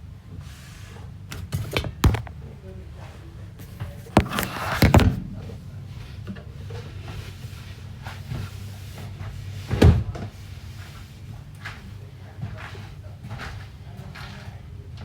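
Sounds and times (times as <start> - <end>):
cupboard doors banging: 1.7 - 2.3, 3.7 - 5.2.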